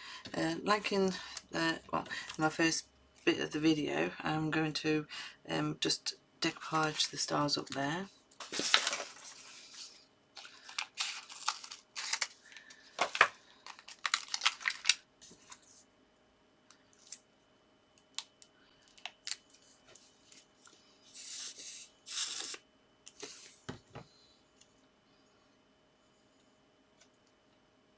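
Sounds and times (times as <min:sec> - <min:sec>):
paper rustling and scraping: 0:08.4 - 0:15.8.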